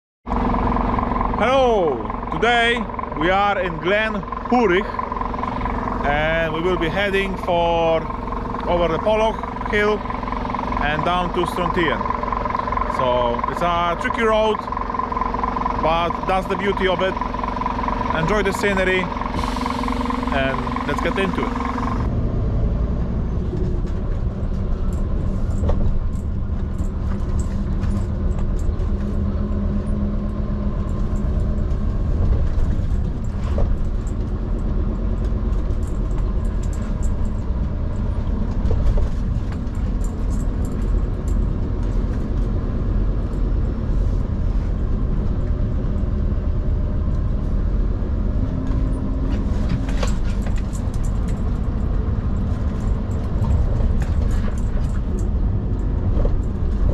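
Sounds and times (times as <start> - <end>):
diesel lorry engine rumbling: 0.3 - 56.9
road noise: 0.3 - 56.9.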